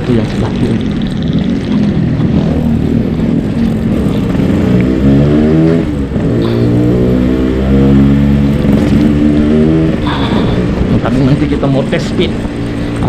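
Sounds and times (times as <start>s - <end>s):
motorcycle engine accelerating: 0.0s - 13.0s
rushing wind noise: 7.6s - 13.0s.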